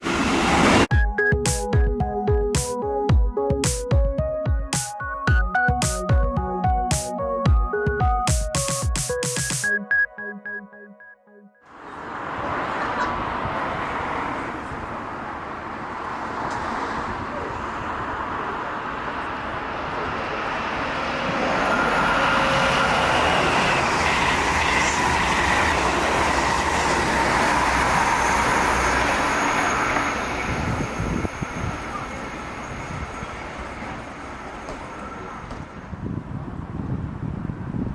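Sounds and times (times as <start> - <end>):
train rumble and rail noise: 0.0 - 0.9, 11.8 - 37.9.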